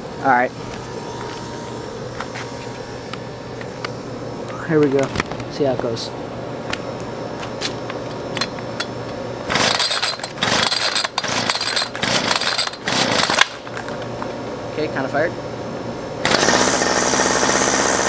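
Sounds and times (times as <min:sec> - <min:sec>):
engine turning over and sputtering: 0:09.5 - 0:14.3, 0:16.2 - 0:18.0
recoil starter cord pulls: 0:09.5 - 0:14.3, 0:16.2 - 0:18.0.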